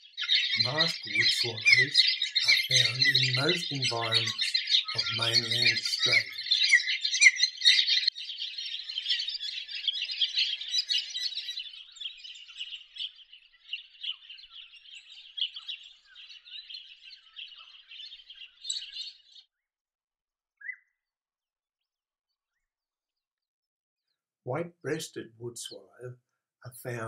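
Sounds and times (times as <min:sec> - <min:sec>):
birds chattering and chirping: 0:00.0 - 0:19.4.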